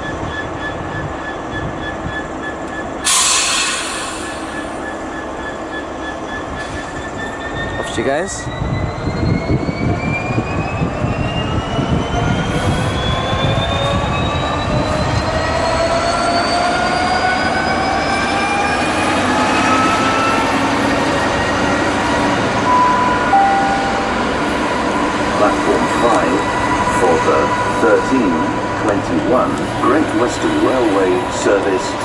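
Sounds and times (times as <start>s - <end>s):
diesel locomotive engine under load: 0.0s - 32.0s
whining tones rising in pitch: 8.3s - 27.8s.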